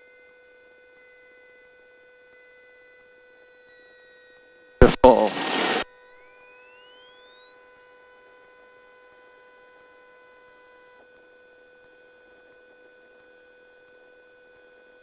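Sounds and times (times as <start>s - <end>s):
electronic whining tones: 4.8s - 5.8s.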